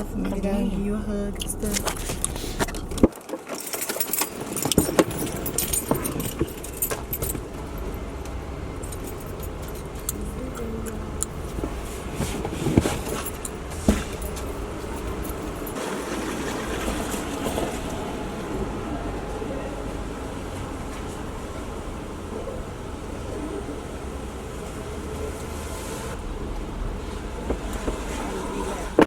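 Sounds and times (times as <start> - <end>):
clicks and rattles inside car: 0.0 - 18.0, 26.6 - 29.0
car engine rumbling: 0.0 - 29.0.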